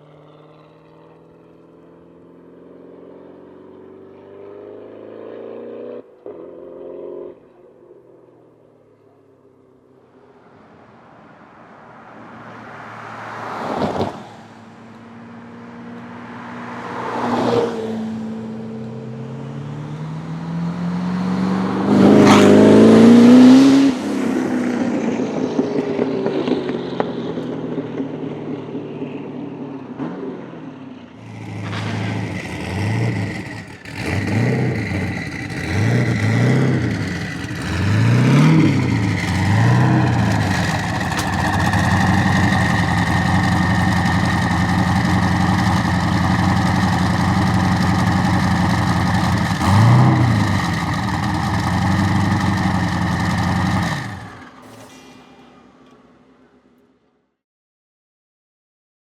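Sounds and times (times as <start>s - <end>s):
car engine accelerating past: 12.4s - 56.1s
engine revving in short blips: 31.2s - 55.4s.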